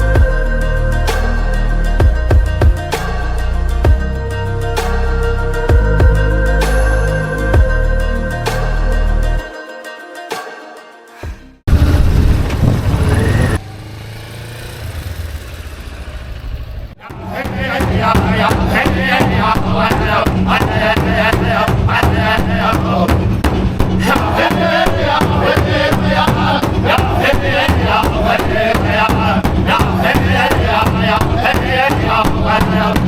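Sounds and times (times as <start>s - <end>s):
big drum fast steady beat: 17.1s - 33.0s.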